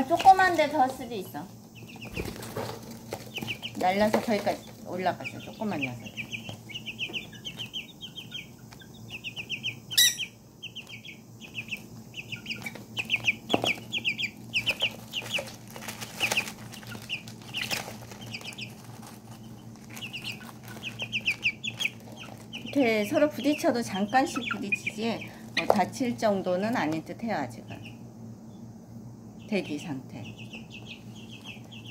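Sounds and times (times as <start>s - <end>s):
chicks peeping: 0.0s - 31.9s
faint steady hum: 0.0s - 31.9s.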